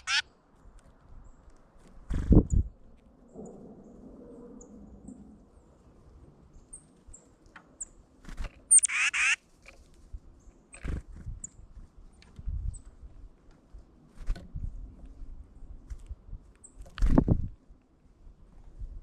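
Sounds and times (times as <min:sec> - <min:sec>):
harsh bird call: 0:00.0 - 0:00.2, 0:08.7 - 0:09.4
small birds chipping: 0:06.5 - 0:13.0.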